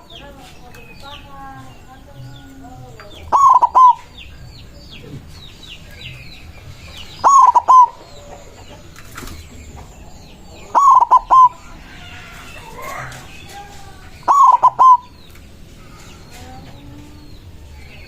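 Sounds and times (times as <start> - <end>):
small birds chirping: 0.0 - 18.0
dove cooing: 2.3 - 4.1, 7.2 - 13.4, 14.2 - 15.2.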